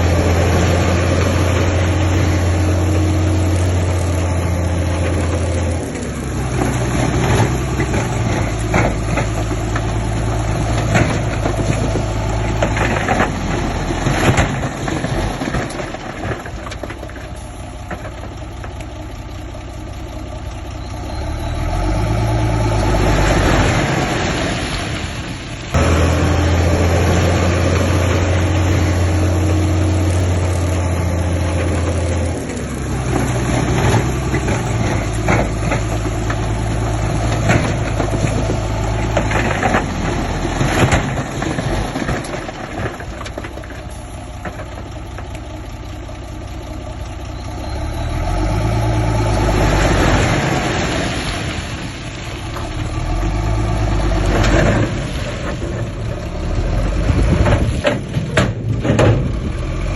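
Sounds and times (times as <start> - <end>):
heavy diesel engines running: 0.0 - 59.9
metal clanks and knocks: 6.5 - 18.9, 25.7 - 45.4, 57.0 - 59.8.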